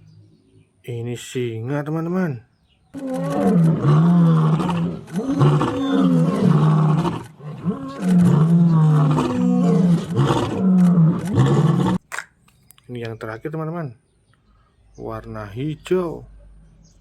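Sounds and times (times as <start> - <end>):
lion roaring: 3.0 - 12.0.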